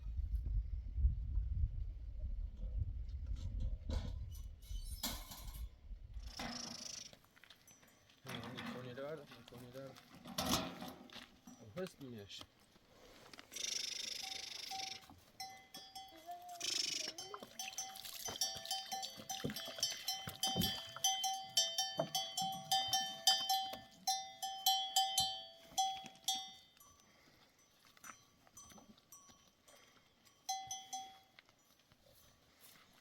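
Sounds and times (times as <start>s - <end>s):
animal bells clanking: 6.3s - 12.4s, 13.5s - 33.0s.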